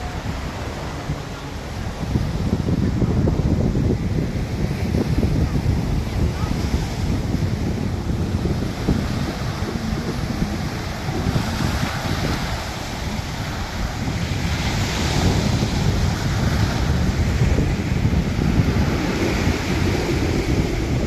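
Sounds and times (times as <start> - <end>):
sea surf breaking on shore: 0.0 - 21.0
wind buffeting microphone: 0.0 - 21.0.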